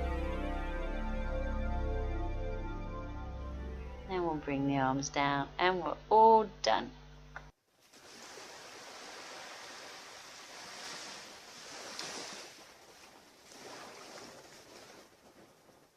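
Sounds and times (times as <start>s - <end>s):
waves washing on a beach: 7.9s - 15.4s.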